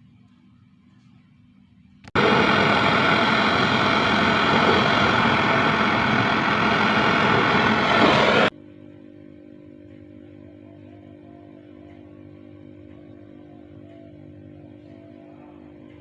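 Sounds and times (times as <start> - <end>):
loud steady rushing noise: 2.2 - 8.5.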